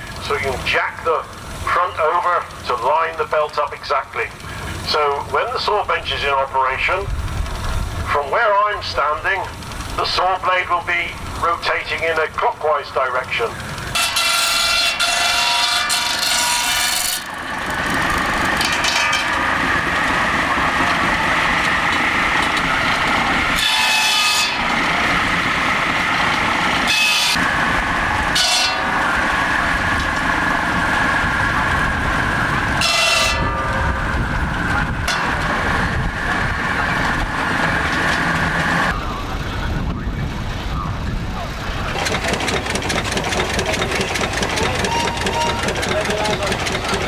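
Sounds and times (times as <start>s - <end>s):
circular saw cutting wood: 13.8s - 38.9s.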